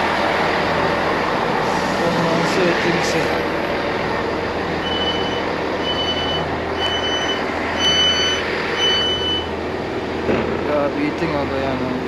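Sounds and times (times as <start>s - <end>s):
low engine rumble: 0.0s - 12.0s
high electronic warning beeps: 4.8s - 9.6s.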